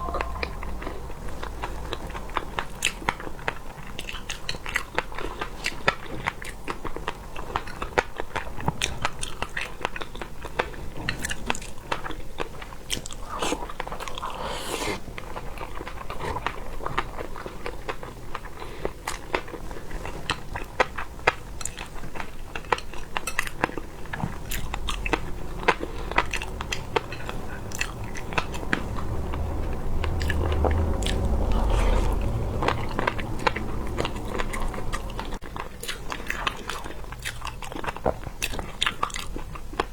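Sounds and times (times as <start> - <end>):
low rumble: 0.0 - 3.7, 23.4 - 35.5.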